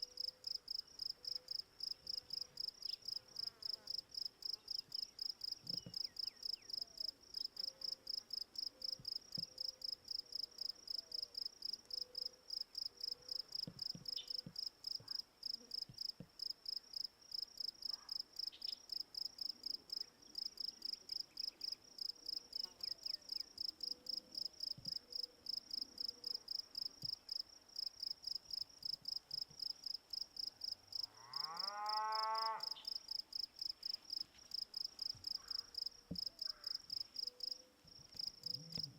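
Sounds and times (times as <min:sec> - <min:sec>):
cow mooing: 0:31.2 - 0:32.7.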